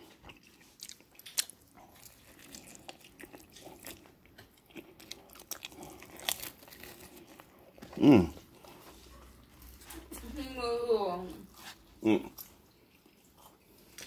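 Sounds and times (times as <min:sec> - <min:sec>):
person chewing pizza: 0:00.0 - 0:10.2, 0:11.4 - 0:14.0.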